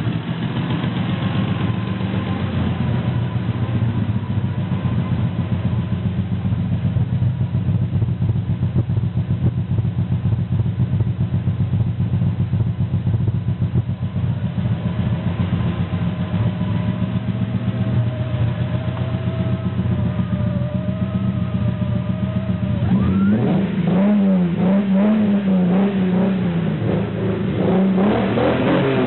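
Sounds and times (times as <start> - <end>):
car engine idling unevenly: 0.0 - 29.0
faint wavering whine: 15.0 - 23.9.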